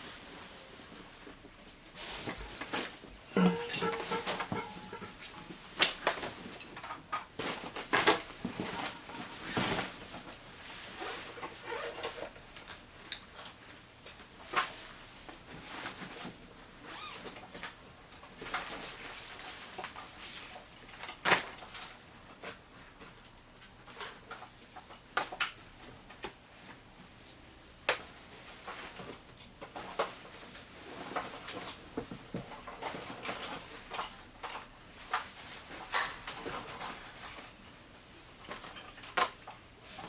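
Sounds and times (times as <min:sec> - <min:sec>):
gear clinking and knocking: 0:03.3 - 0:06.9.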